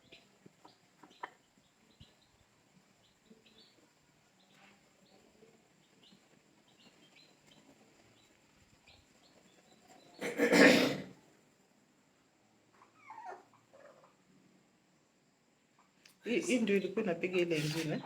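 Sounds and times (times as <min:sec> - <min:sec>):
chicks peeping: 0:00.0 - 0:10.3, 0:12.7 - 0:14.3, 0:15.8 - 0:18.0.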